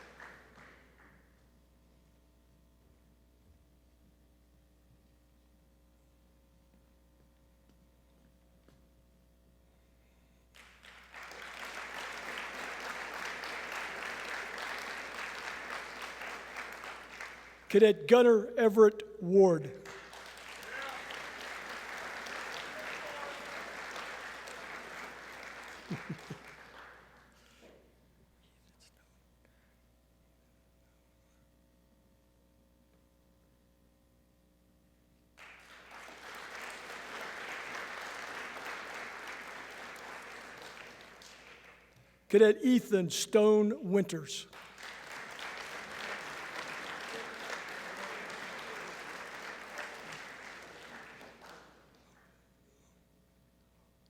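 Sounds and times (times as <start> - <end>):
audience applauding: 0.0 - 1.2, 10.5 - 17.9, 19.8 - 27.4, 35.4 - 42.5, 44.5 - 52.2.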